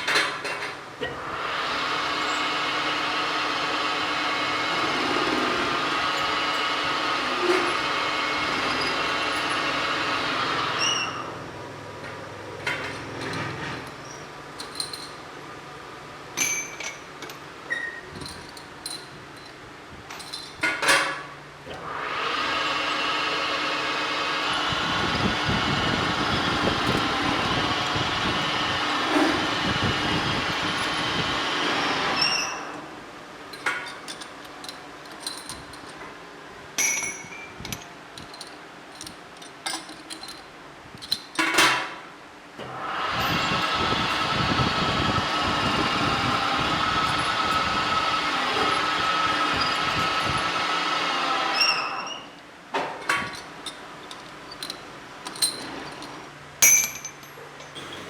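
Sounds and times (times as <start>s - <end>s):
metalworking machine whining hum: 0.0s - 58.0s
metal clinks and taps: 56.6s - 57.8s.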